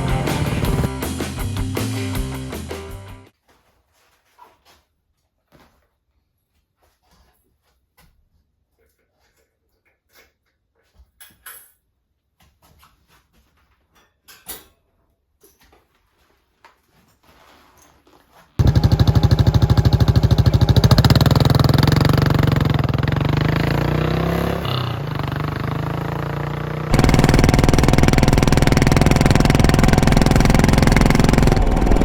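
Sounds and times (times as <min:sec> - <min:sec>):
motorcycle engine running: 0:00.0 - 0:02.6, 0:18.6 - 0:32.0.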